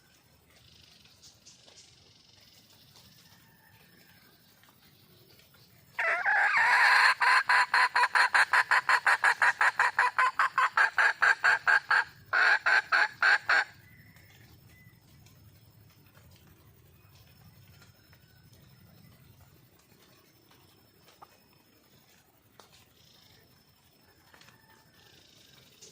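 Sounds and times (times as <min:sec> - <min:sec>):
hen clucking call: 0:06.0 - 0:13.8.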